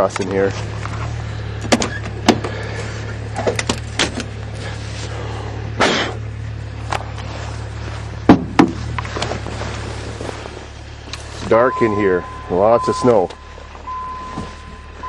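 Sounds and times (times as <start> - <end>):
diesel engine idling: 0.0 - 15.0
footsteps crunching through snow: 7.2 - 12.0.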